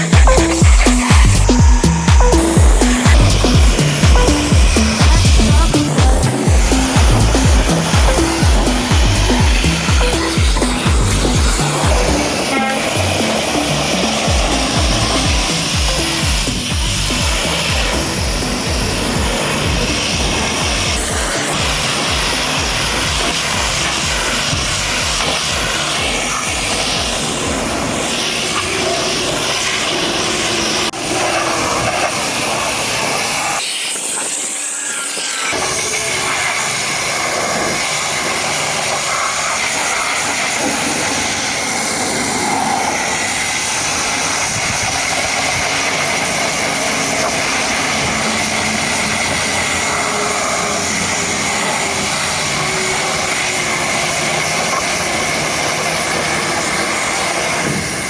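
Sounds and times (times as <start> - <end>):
pressure washer spraying water: 0.0 - 58.0
low rumble: 0.3 - 12.3.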